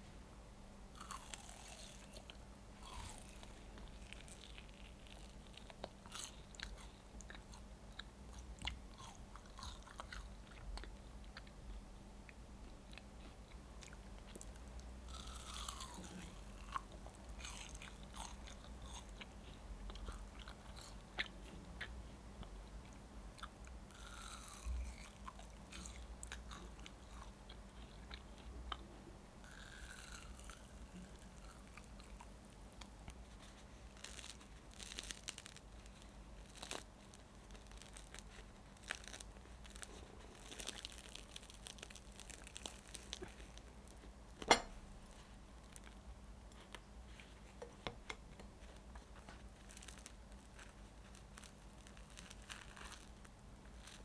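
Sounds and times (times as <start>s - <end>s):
person chewing and crunching: 1.0s - 11.6s, 12.3s - 44.1s, 48.6s - 54.0s.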